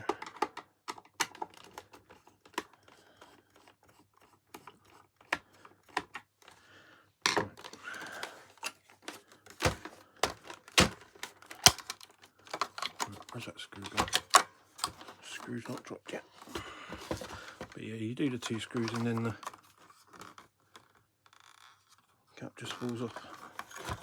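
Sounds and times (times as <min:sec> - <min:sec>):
screwdriver clicking on plastic: 0:07.6 - 0:13.2, 0:13.8 - 0:15.1.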